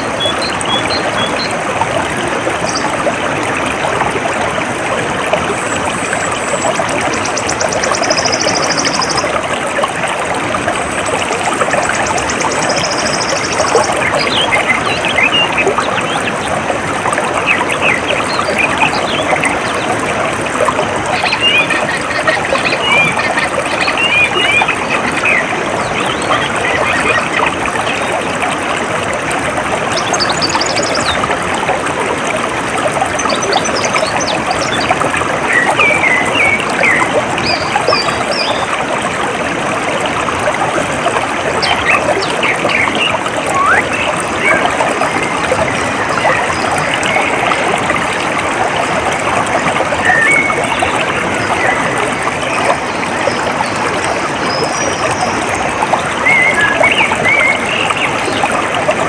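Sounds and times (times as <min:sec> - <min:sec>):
stream trickling: 0:00.0 - 0:59.0.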